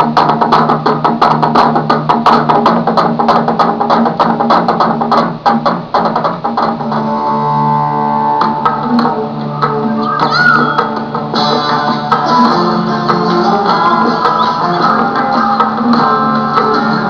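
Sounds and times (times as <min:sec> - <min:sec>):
held pitched notes: 0:06.9 - 0:17.0.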